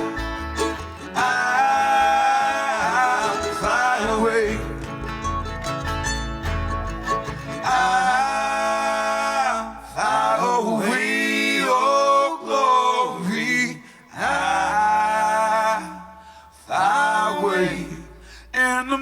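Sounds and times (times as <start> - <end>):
men singing in harmony: 1.0 - 4.9, 7.6 - 18.1
singers breathing: 13.8 - 14.1, 16.1 - 16.7, 18.1 - 18.6.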